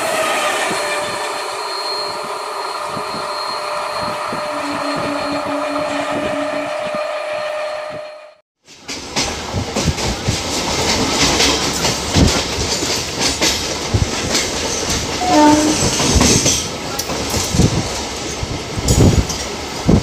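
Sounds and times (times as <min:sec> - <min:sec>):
train running noise: 0:00.0 - 0:20.0
wheels clacking over rail joints: 0:08.7 - 0:20.0.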